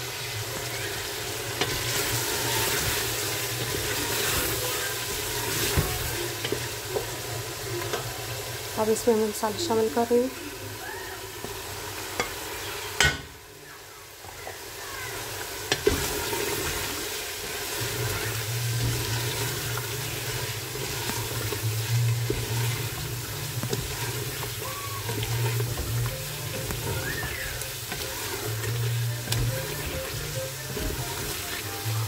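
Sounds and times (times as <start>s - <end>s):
food sizzling in a pot: 0.0s - 32.0s
wooden spoon scraping pot: 17.8s - 32.0s.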